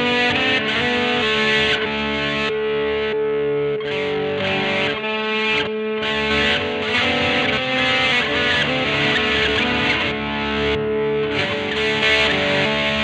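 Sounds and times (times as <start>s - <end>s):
distorted electric guitar: 0.0s - 13.0s.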